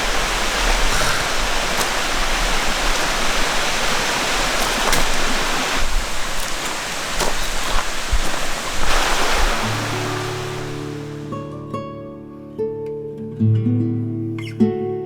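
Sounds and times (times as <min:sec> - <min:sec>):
stream water rushing: 0:00.0 - 0:11.4.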